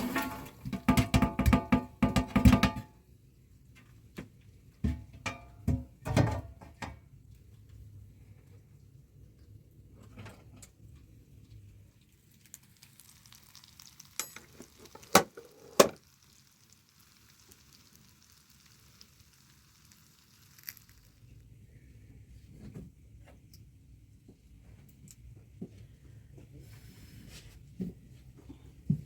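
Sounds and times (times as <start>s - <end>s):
food sizzling over fire: 12.4s - 21.3s.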